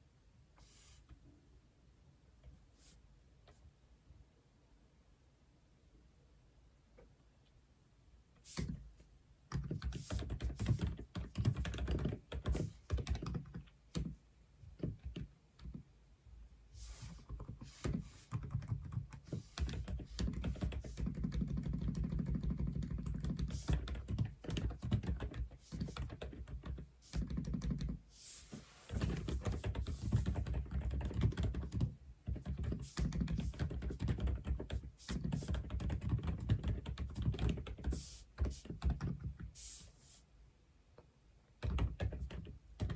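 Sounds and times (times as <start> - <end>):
typing on mechanical keyboard: 9.5 - 14.2, 17.3 - 28.0, 28.9 - 39.4, 41.6 - 42.9.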